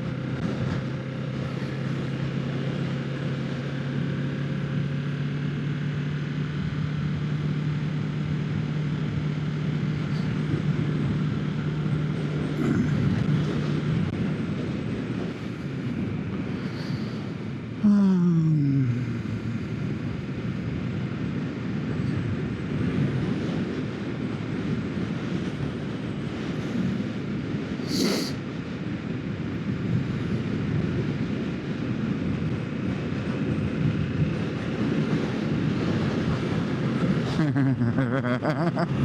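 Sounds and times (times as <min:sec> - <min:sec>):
wind rush: 0:18.6 - 0:37.6.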